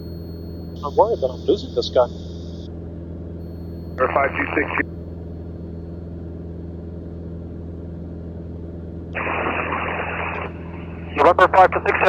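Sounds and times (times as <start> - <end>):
airplane engine droning: 0.0 - 12.0
radio hiss: 4.0 - 4.8, 9.2 - 12.0.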